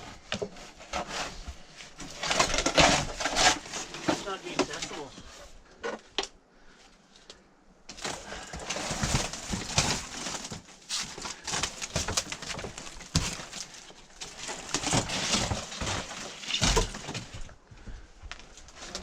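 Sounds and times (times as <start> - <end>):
debris scraping and clattering: 0.0 - 5.2, 7.9 - 17.6.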